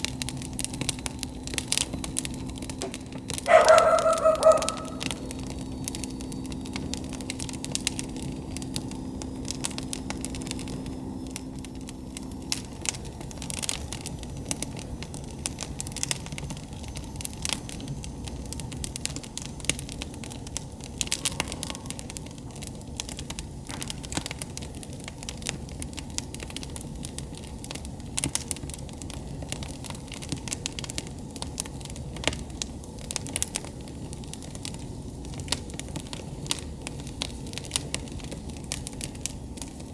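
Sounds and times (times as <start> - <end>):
low steady hum: 0.0 - 23.6
campfire crackling and popping: 0.0 - 39.9
low rush of burning: 0.0 - 39.9.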